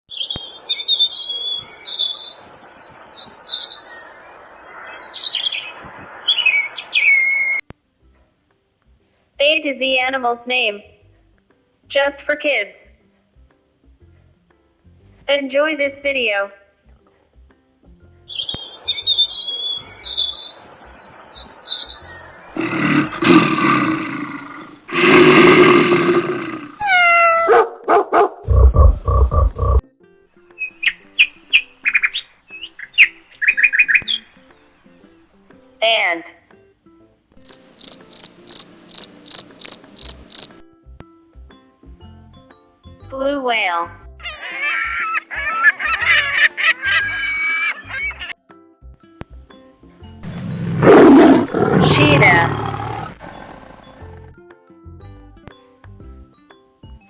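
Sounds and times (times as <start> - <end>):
birds chirping and singing: 0.1 - 7.6, 18.3 - 24.6, 30.6 - 35.0, 50.2 - 54.2
falling squealing calls: 0.1 - 7.6, 18.3 - 24.8, 44.2 - 48.4, 50.2 - 53.5
background hiss: 0.1 - 12.3, 16.8 - 26.8, 37.0 - 40.6
low barks: 22.4 - 26.8, 27.4 - 28.6, 50.2 - 54.2
loud animal roars: 22.5 - 26.9, 50.2 - 54.3.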